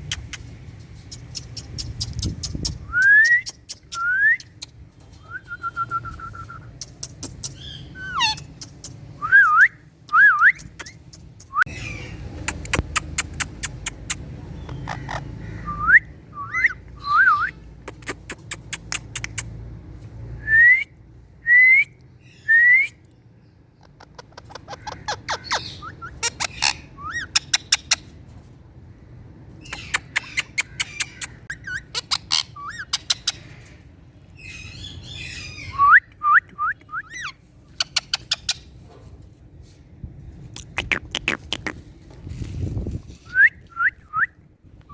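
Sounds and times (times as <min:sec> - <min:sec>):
parrot whistling and chattering: 0:06.6 - 0:09.0, 0:10.5 - 0:14.3, 0:15.7 - 0:19.6, 0:29.6 - 0:33.4
parrot sharp clicks: 0:29.8 - 0:31.4.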